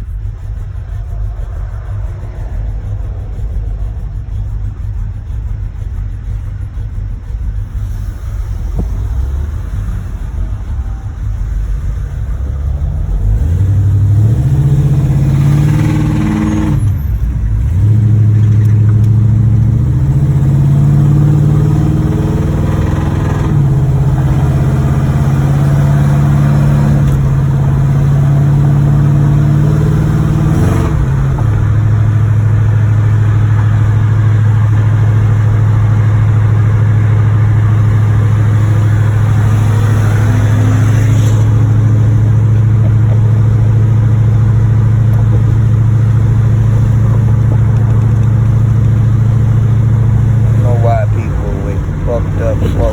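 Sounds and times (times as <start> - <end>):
car engine with rod knock: 8.7 - 9.2, 16.1 - 20.4, 39.2 - 52.9.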